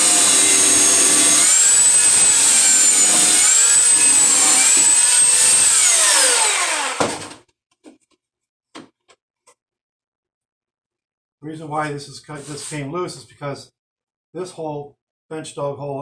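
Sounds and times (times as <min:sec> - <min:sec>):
power sander whining on wood: 0:00.0 - 0:07.4.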